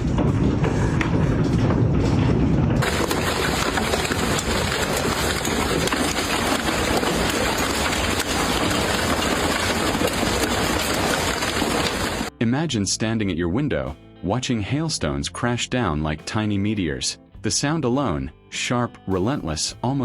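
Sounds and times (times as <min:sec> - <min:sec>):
hail and rain pelting down: 0:02.8 - 0:12.3.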